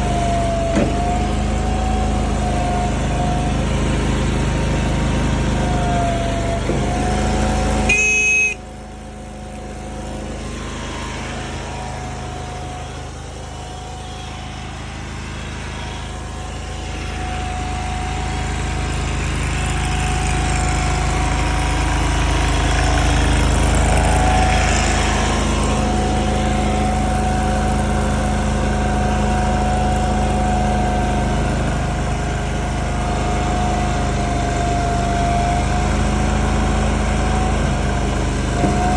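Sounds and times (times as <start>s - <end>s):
small gas engine running: 0.0s - 38.9s
steady whine: 5.3s - 27.8s
short high beep: 7.9s - 8.6s.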